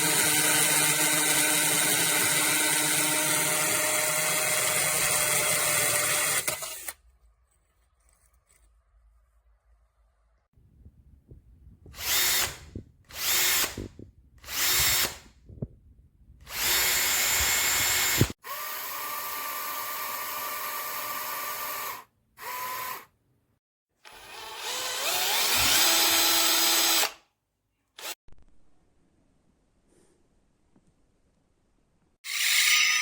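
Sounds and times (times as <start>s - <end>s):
cordless hammer drill whining: 0.0s - 7.0s, 12.0s - 15.2s, 16.5s - 23.1s, 24.0s - 27.2s.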